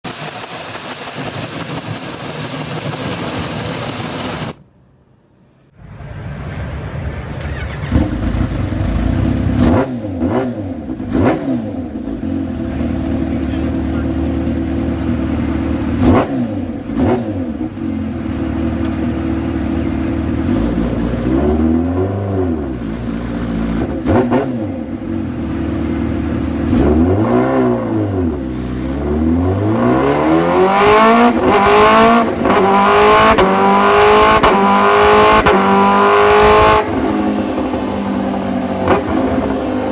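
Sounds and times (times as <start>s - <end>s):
motorcycle engine revving: 7.2s - 39.9s.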